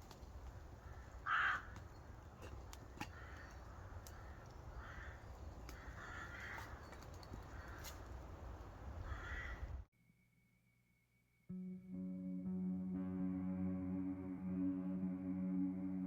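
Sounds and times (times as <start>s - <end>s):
crow cawing: 0.8s - 1.9s, 3.0s - 8.0s, 9.0s - 9.8s.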